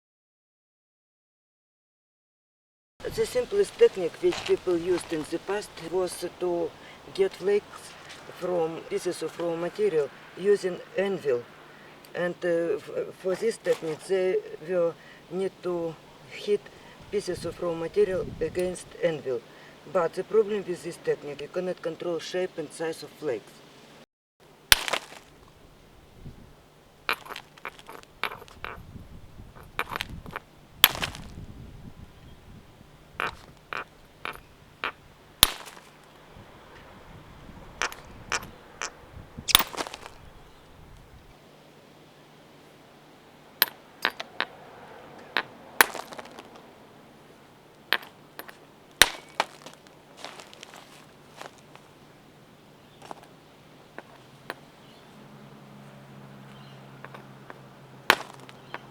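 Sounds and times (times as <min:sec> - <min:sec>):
stone striking stone anvil: 0:24.7 - 0:25.3, 0:27.1 - 0:28.8, 0:29.6 - 0:31.2, 0:33.2 - 0:35.9, 0:37.8 - 0:40.2, 0:43.6 - 0:44.5, 0:45.4 - 0:46.5, 0:47.9 - 0:49.6, 0:57.0 - 0:58.9.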